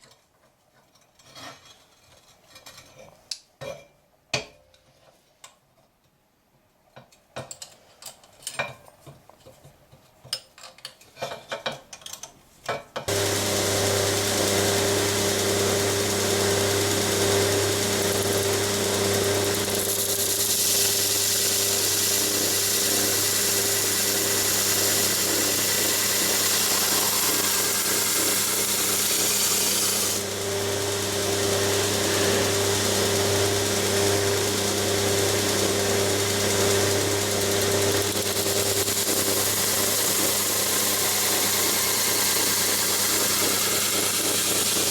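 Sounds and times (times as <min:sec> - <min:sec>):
belt grinder running: 0:13.1 - 0:44.9
hiss of steel being ground: 0:21.8 - 0:30.2.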